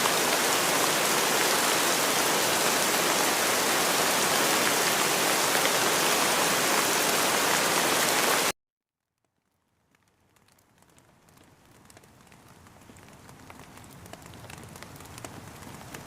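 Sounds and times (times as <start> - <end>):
dense rain: 0.0 - 8.5, 9.3 - 16.0
faint scattered raindrops: 0.0 - 16.0.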